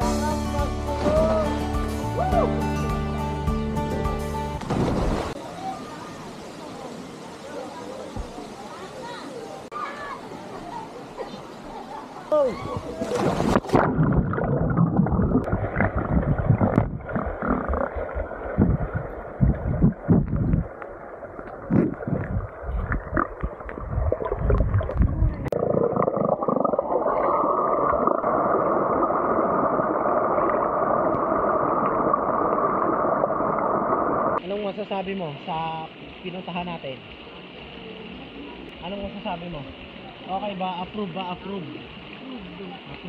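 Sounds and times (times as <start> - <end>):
underwater churning water and bubbles: 13.1 - 34.4.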